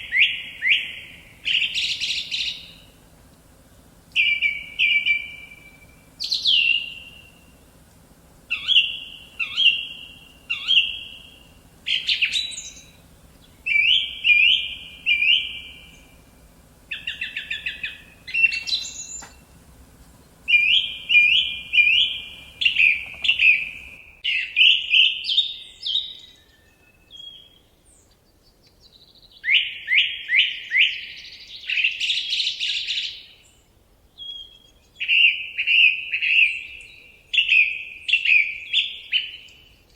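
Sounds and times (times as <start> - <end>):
faint low hum: 0.0 - 24.3
songbirds chirping: 0.0 - 39.9.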